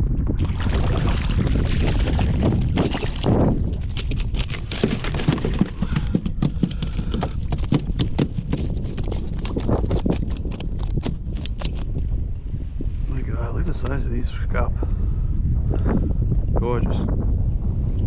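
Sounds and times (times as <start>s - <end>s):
wind rumble on microphone: 0.0s - 18.0s
sharp clicks and knocks: 3.9s - 11.9s.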